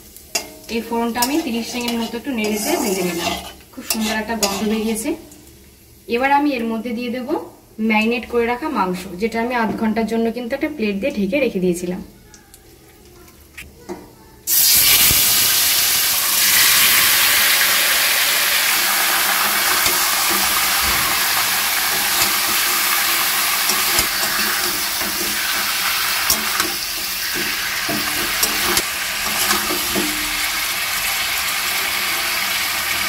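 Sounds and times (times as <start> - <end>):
chicken sizzling in hot oil: 0.0 - 6.1, 14.5 - 33.0
metal spatula scraping a pan: 0.3 - 5.0, 19.2 - 30.6.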